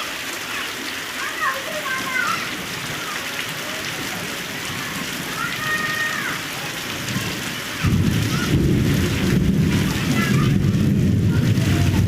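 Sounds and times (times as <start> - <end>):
heavy rain: 0.0 - 12.0
low thunder rumble: 6.9 - 12.0.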